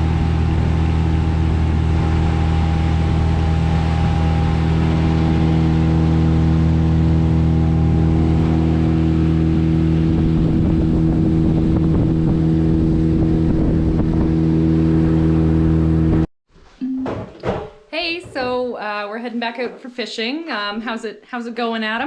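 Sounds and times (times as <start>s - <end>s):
outboard motor droning: 0.0s - 16.3s.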